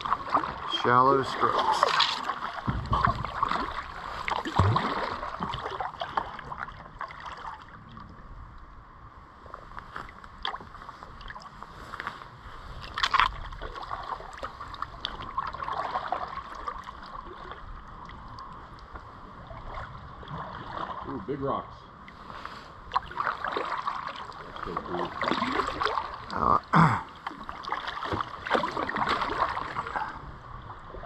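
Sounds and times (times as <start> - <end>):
kayak paddle splashing water: 0.0 - 7.8, 12.7 - 18.4, 19.0 - 21.1, 22.1 - 30.2.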